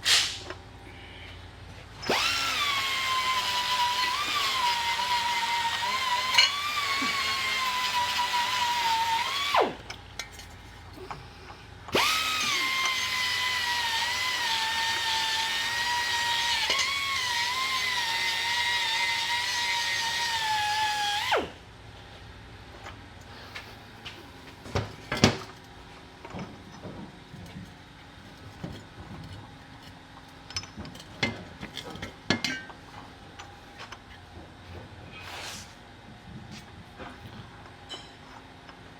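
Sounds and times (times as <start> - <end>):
power tool whining: 2.0 - 9.9, 11.9 - 21.6.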